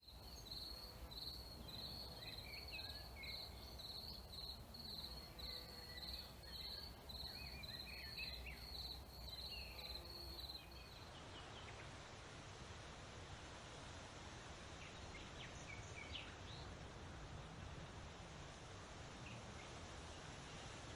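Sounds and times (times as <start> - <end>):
faint outdoor noise: 0.0 - 20.9
insect chirping: 0.1 - 11.0.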